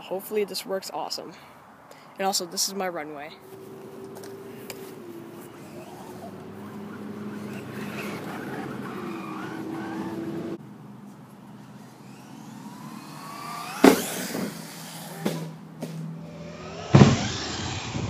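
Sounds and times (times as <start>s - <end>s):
toy car motor whining: 4.2s - 10.6s, 11.6s - 15.6s, 16.2s - 18.0s
loud sharp bang: 13.8s - 14.5s, 16.9s - 18.0s.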